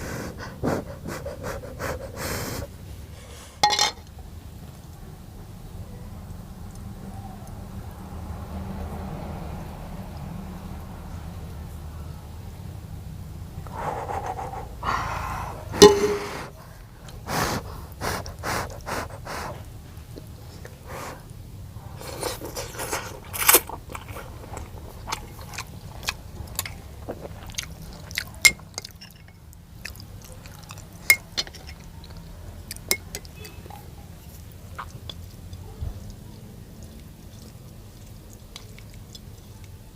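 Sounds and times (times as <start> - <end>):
person chewing crunchy food: 22.0 - 39.9.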